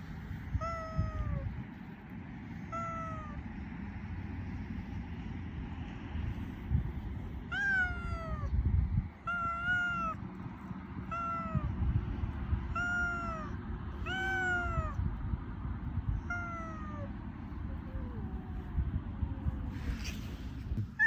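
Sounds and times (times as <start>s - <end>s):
steady low rumble: 0.0s - 21.0s
cat meowing: 0.5s - 1.5s, 2.7s - 3.4s, 7.5s - 8.5s, 9.2s - 10.2s, 11.0s - 11.8s, 12.6s - 15.0s, 16.1s - 18.7s.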